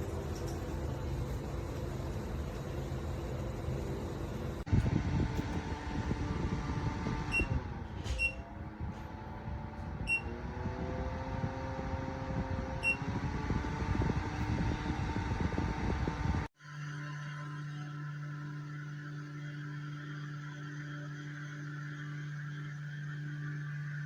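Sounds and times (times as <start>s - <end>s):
air cooler fan humming: 0.0s - 8.2s
short electronic beeps: 10.1s - 10.3s, 12.8s - 13.0s.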